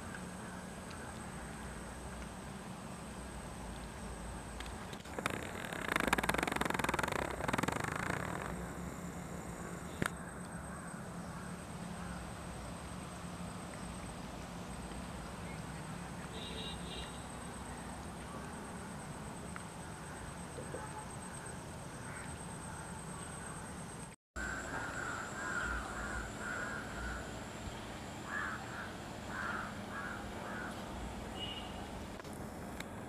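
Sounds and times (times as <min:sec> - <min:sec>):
faint high whine: 0:00.0 - 0:33.0
bird calling: 0:24.4 - 0:27.5, 0:28.2 - 0:30.8.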